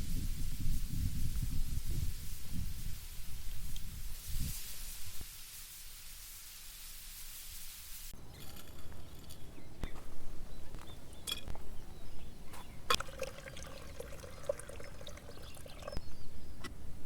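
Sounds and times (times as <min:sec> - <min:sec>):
light clinks and knocks: 0:08.3 - 0:10.1, 0:10.7 - 0:11.7
liquid pouring into a cup: 0:12.9 - 0:16.0.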